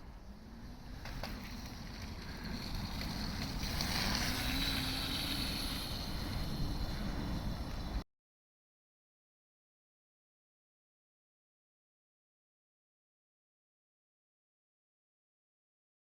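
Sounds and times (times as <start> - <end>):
wind noise on microphone: 0.0 - 8.0
electric motor whine: 3.4 - 7.5.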